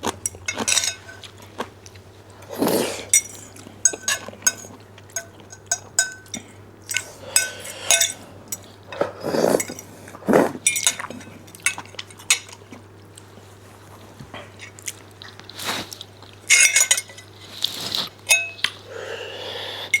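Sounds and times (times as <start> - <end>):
utensils clinking against dishes: 0.0 - 1.7, 2.4 - 12.8, 15.6 - 18.8.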